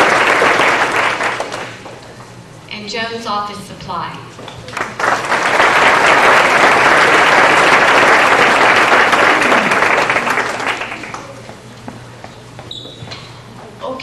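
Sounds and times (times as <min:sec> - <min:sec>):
audience applauding: 0:00.0 - 0:01.9, 0:04.6 - 0:11.5.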